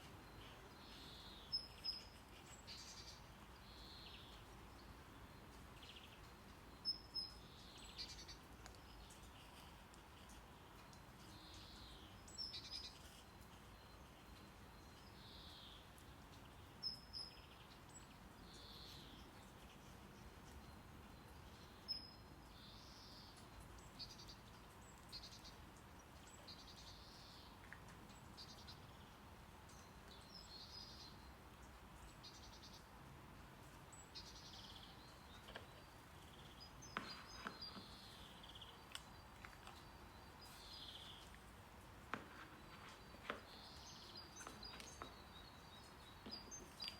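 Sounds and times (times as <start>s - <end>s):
faint brown noise: 0.0s - 46.9s.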